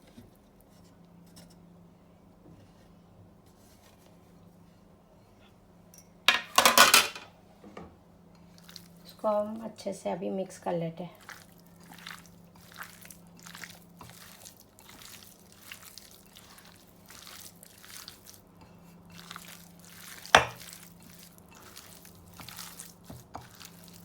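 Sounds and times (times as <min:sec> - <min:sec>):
wet squishing in a bowl: 0:08.3 - 0:09.8, 0:11.0 - 0:24.0.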